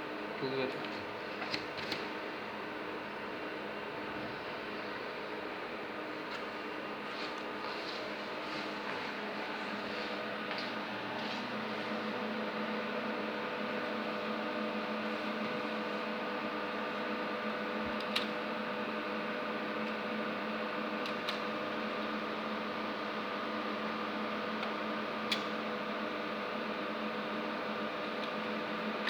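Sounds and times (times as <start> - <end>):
machine hum and fan whir: 0.0 - 29.0.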